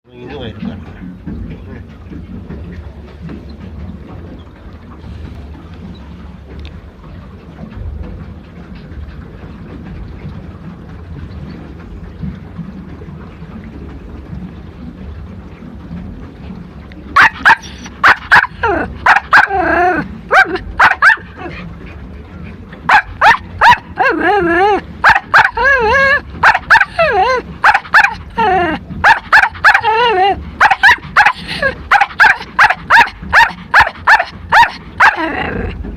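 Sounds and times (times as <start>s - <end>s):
low steady rumble: 0.1s - 35.9s
small dog barking and whining: 17.2s - 21.3s, 22.9s - 28.2s, 29.0s - 35.3s.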